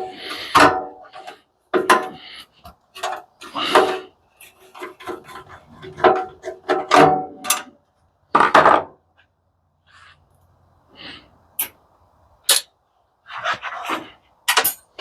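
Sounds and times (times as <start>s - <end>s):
tools clattering on metal: 3.0s - 7.8s, 13.7s - 15.0s
loud metal scrape: 3.5s - 6.6s.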